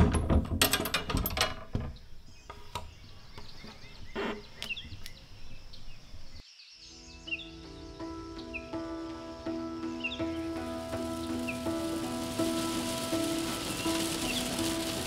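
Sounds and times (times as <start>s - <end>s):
sharp knocks and clatter: 0.0s - 2.0s
birds chirping: 1.7s - 15.0s.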